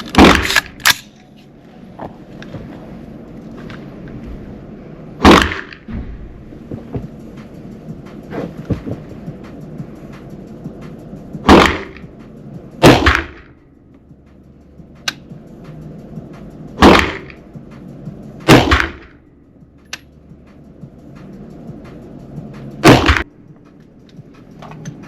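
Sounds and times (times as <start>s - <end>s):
rifle shots echoing: 0.1s - 1.1s, 5.2s - 5.9s, 11.5s - 12.0s, 12.8s - 13.5s, 16.8s - 17.4s, 18.5s - 19.1s, 22.8s - 23.2s.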